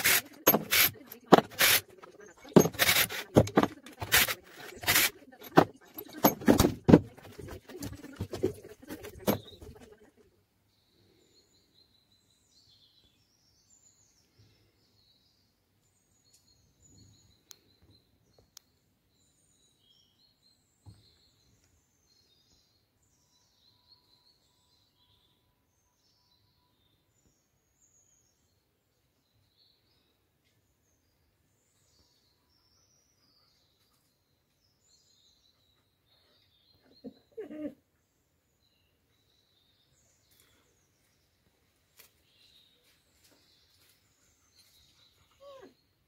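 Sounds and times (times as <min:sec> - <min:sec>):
faint birds chirping: 0:00.0 - 0:46.0.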